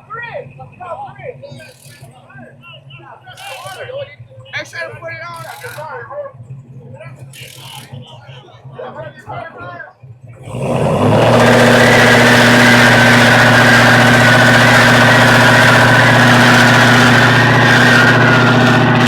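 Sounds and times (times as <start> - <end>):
car engine at high revs: 10.3 - 19.0.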